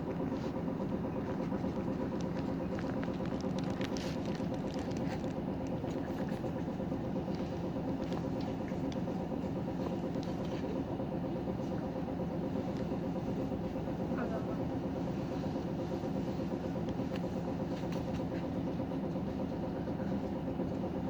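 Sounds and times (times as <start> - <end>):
bus engine drone: 0.0 - 21.0.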